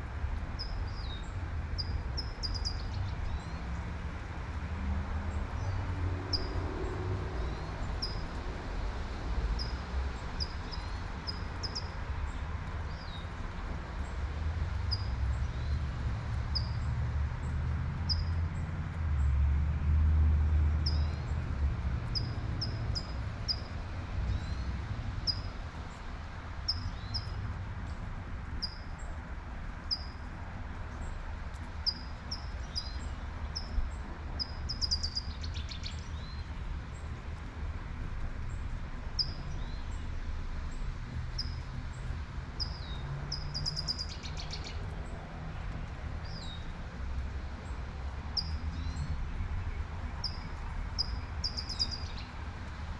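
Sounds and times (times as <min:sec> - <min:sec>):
low traffic rumble: 0:00.0 - 0:52.9
songbird chirping: 0:31.5 - 0:36.5, 0:42.6 - 0:45.2, 0:48.4 - 0:52.4.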